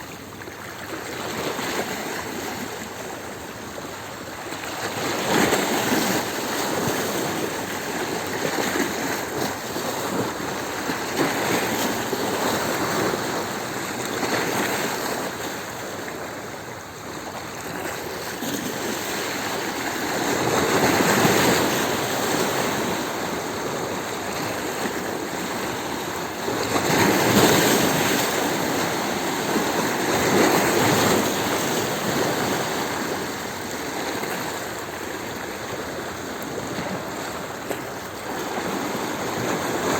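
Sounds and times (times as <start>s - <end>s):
sea waves on a stony shore: 0.0s - 39.9s.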